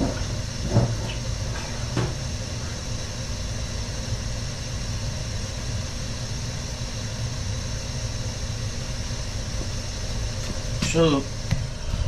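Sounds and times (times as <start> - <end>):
gas burner rumbling and hissing: 0.0 - 12.0.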